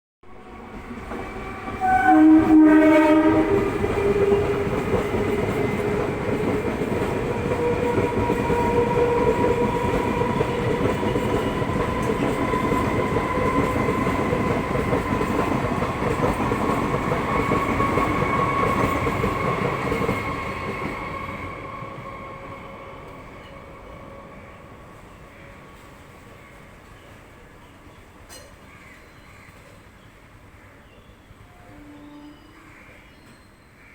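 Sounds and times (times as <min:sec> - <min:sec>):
train whine: 0:00.2 - 0:27.9
train rumble: 0:00.3 - 0:27.4.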